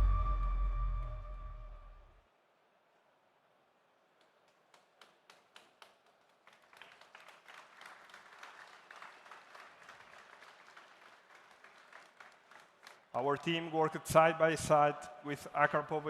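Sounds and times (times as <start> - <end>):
crowd clapping: 4.2 - 14.0.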